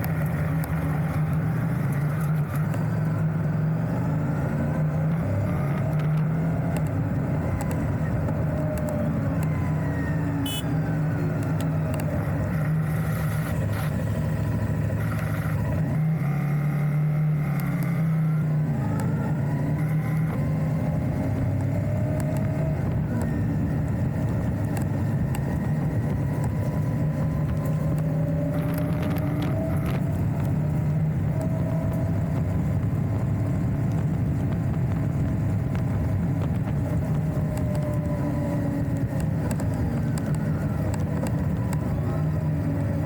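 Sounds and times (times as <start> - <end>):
motorcycle engine running: 10.4 - 15.8.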